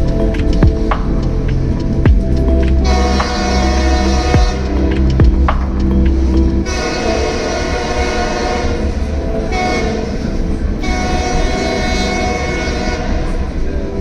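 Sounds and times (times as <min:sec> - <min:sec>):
low train rumble: 0:00.0 - 0:14.0
train horn blasts: 0:06.7 - 0:13.7.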